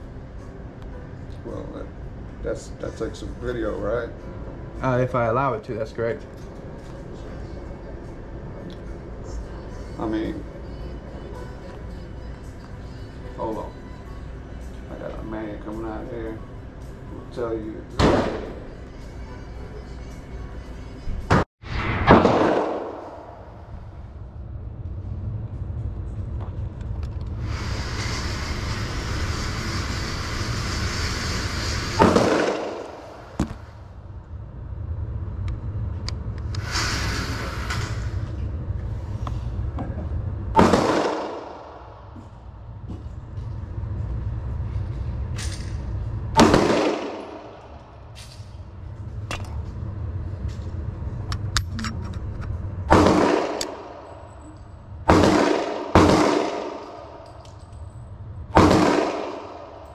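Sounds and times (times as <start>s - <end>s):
steady low rumble: 0.0s - 59.9s
muffled gunshots: 18.0s - 18.6s, 21.8s - 23.4s, 32.0s - 33.7s, 40.6s - 41.7s, 46.4s - 47.6s, 52.9s - 54.0s, 55.1s - 57.1s, 58.6s - 59.8s.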